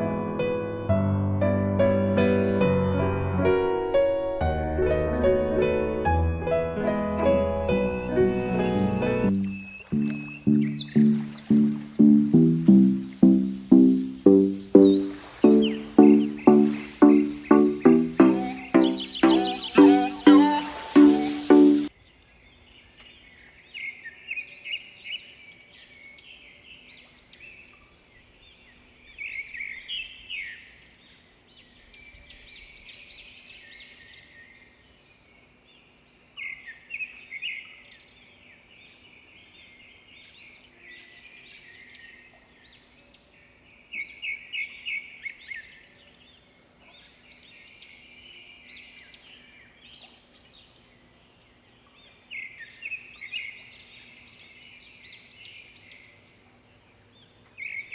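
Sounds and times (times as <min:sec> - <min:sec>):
birds chattering calls: 0:08.0 - 0:21.9.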